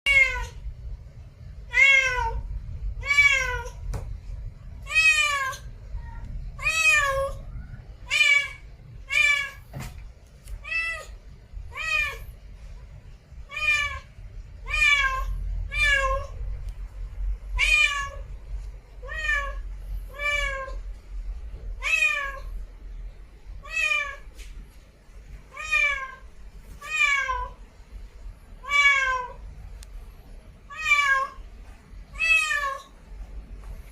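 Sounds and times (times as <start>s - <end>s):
cat meowing: 0.1s - 0.6s, 1.7s - 2.4s, 4.8s - 9.6s, 10.6s - 12.2s, 13.5s - 16.4s, 17.6s - 18.3s, 19.0s - 20.8s, 23.6s - 24.3s, 25.5s - 26.2s, 26.8s - 27.6s, 28.6s - 29.4s, 30.7s - 31.4s, 32.1s - 32.9s.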